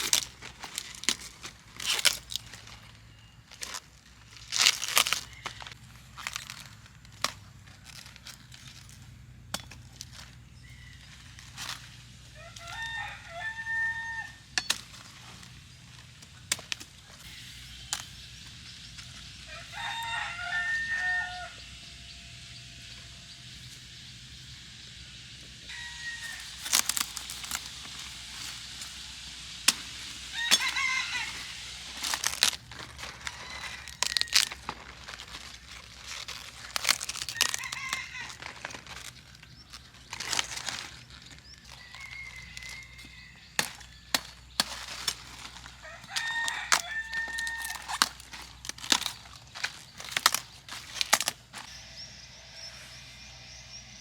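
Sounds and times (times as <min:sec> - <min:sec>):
rooster crowing: 0:10.6 - 0:11.7, 0:12.3 - 0:14.6, 0:19.4 - 0:22.4, 0:25.7 - 0:28.9, 0:30.1 - 0:32.4, 0:33.0 - 0:34.6, 0:37.1 - 0:38.7, 0:41.5 - 0:44.0, 0:45.5 - 0:49.1
loud rustling: 0:26.1 - 0:51.7.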